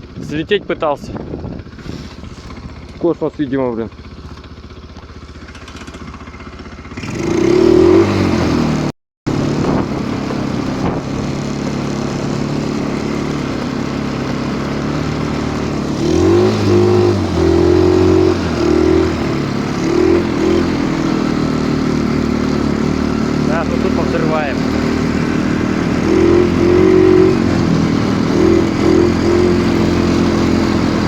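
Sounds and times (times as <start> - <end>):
snowmobile engine revving: 6.8 - 31.0.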